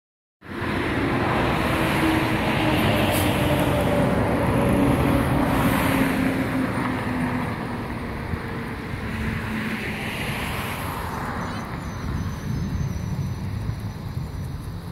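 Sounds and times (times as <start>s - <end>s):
passing vehicles rushing: 0.4s - 14.9s.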